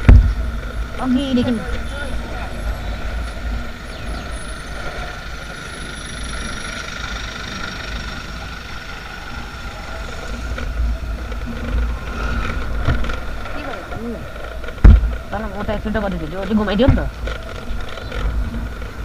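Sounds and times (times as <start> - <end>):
deep continuous rumble: 0.0 - 19.0
motorcycle engine and road noise: 0.0 - 19.0.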